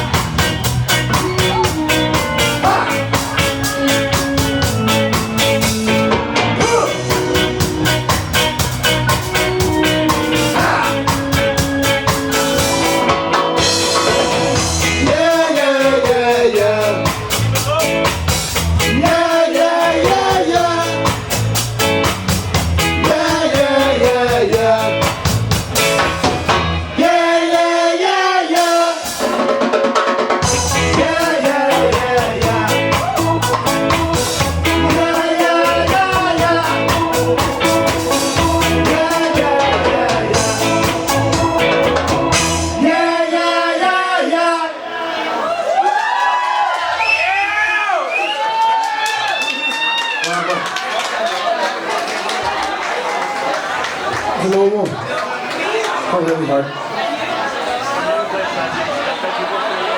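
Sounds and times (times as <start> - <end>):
live ska band playing: 0.0 - 45.6
person singing lead vocal: 1.1 - 8.2, 10.1 - 12.8, 14.0 - 17.6, 18.8 - 21.4, 22.9 - 25.2, 26.9 - 29.5, 30.4 - 45.2.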